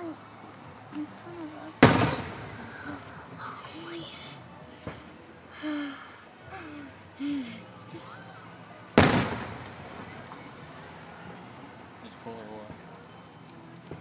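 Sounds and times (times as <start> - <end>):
crickets chirping: 0.0 - 14.0
firework bang: 1.8 - 3.1, 8.9 - 10.9.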